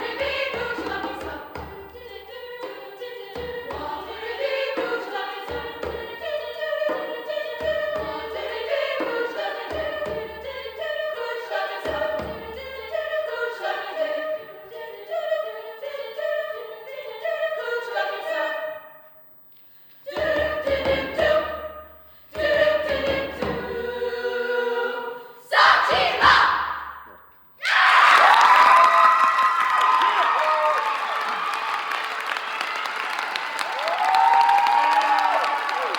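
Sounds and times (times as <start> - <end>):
mixed choir singing: 0.0 - 19.1, 20.0 - 27.0
audience cheering and shouting: 27.6 - 35.9.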